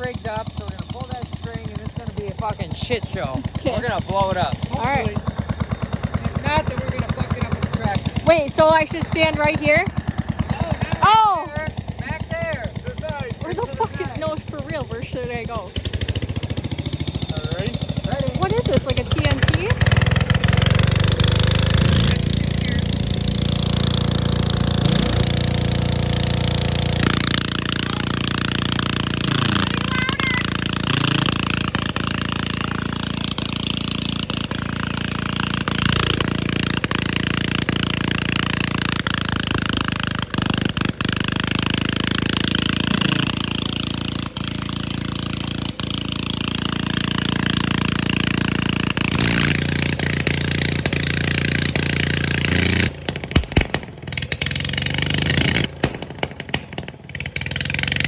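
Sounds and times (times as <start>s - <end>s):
hard rapid rattle: 0.0s - 58.0s
tractor engine screaming at full throttle: 0.0s - 58.0s.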